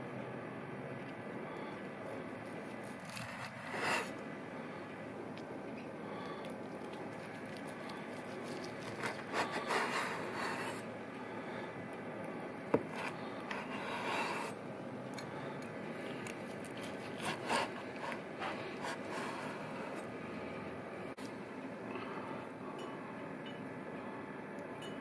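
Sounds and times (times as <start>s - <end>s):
scraping and rubbing strokes: 2.8s - 4.2s, 8.5s - 10.9s.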